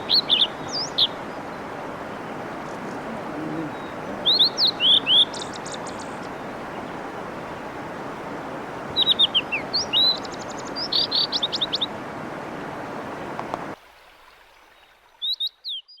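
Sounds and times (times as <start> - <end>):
mountain stream rushing: 0.0 - 15.4
bird singing whistled notes: 9.0 - 11.9.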